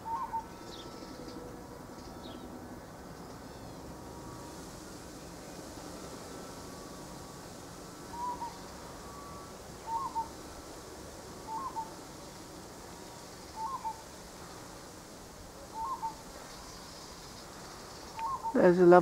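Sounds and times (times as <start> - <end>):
bird whistling call: 0.0 - 1.2, 8.1 - 10.4, 11.4 - 12.0, 13.5 - 14.0, 15.7 - 16.2, 18.1 - 18.7.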